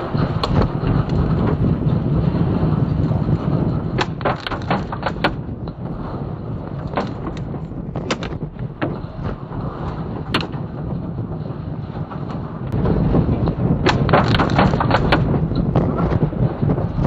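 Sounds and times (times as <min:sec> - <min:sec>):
strong wind buffeting a car: 0:00.0 - 0:17.0
objects striking car body: 0:04.0 - 0:05.4, 0:08.0 - 0:09.0, 0:13.8 - 0:15.3.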